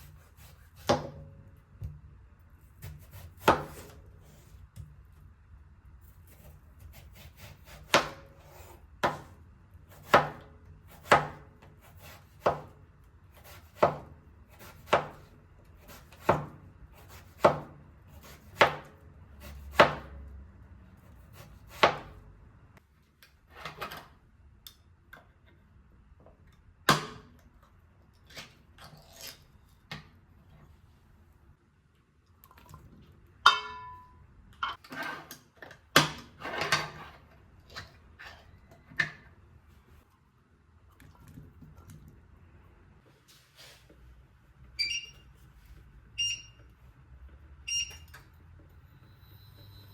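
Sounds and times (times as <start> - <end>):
knife chopping on wooden board: 0.8 - 1.2, 2.8 - 4.0, 7.1 - 8.4, 9.0 - 9.4, 10.0 - 12.8, 13.4 - 20.2, 21.4 - 22.2
ringing clink: 33.5 - 34.2.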